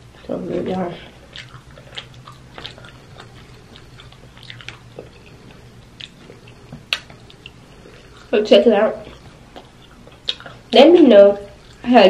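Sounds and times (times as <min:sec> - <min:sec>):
chewing food: 0:00.0 - 0:12.0
wet mouth clicks and smacks: 0:01.3 - 0:08.3, 0:09.1 - 0:10.6.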